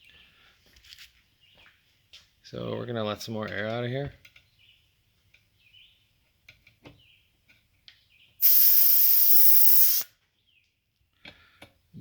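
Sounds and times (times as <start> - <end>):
compressed air hissing from valve: 8.4 - 10.1.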